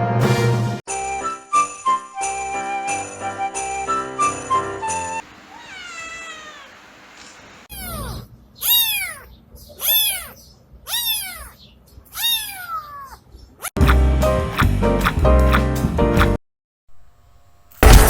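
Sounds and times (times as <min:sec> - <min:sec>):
cat meowing: 0:05.4 - 0:13.7
loud music: 0:13.8 - 0:16.4.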